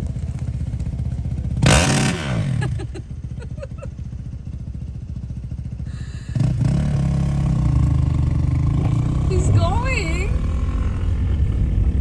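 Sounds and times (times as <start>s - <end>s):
dirt bike engine passing: 0.0s - 3.0s, 5.8s - 12.0s.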